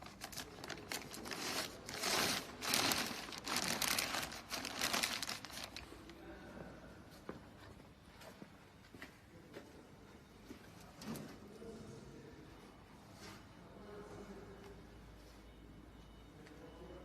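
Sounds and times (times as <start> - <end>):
material crinkling and rustling: 0.0 - 6.2.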